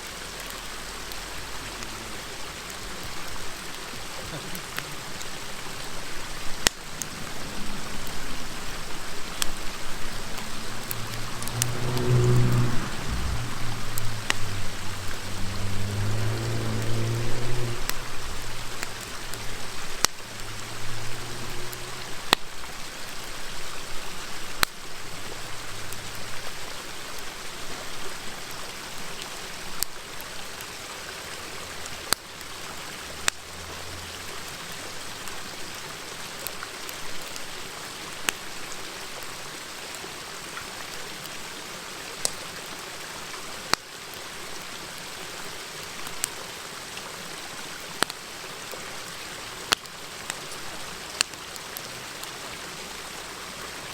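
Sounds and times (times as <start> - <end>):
wood fire crackling: 0.0 - 30.7, 47.7 - 52.3
river murmur: 0.0 - 38.9.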